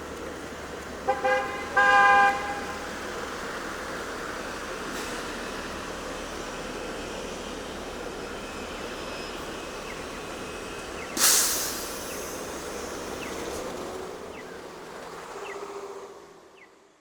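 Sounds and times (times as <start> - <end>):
city street traffic: 0.0 - 17.0
sudden loud hiss: 11.2 - 12.8.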